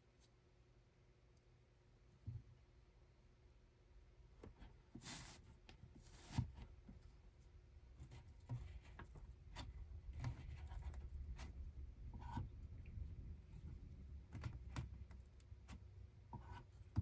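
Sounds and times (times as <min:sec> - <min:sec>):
soft rubbing and scratching: 0:04.4 - 0:17.0
steady low hum: 0:06.6 - 0:17.0.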